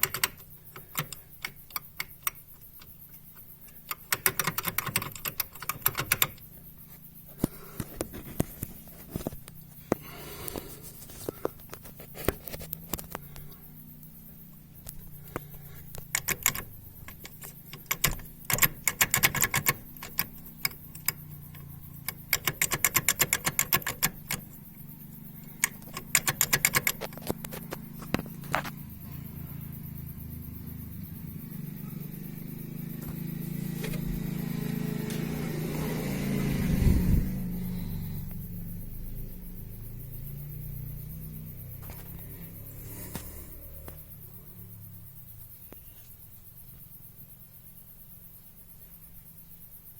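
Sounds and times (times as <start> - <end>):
metallic rattling clicks from engine: 0.0 - 6.7, 14.8 - 24.6, 25.4 - 28.9
steady low engine hum: 0.0 - 45.9.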